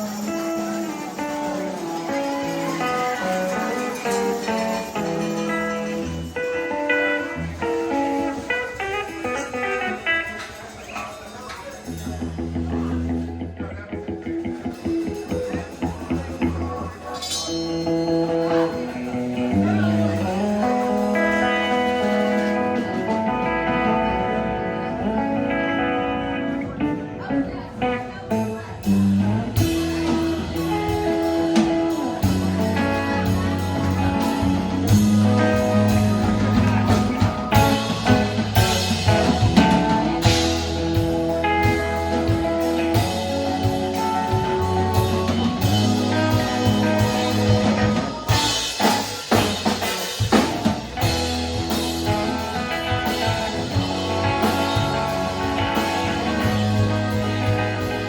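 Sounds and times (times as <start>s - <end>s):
live band playing: 0.0s - 58.0s
sustained guitar notes: 11.8s - 58.0s.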